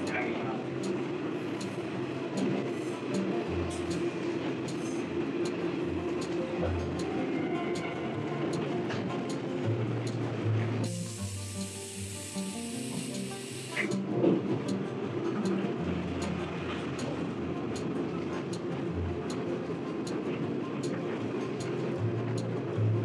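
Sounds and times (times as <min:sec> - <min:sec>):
background music: 0:00.0 - 0:23.0
train rumble with ticks: 0:00.0 - 0:23.0
hiss: 0:10.8 - 0:14.0.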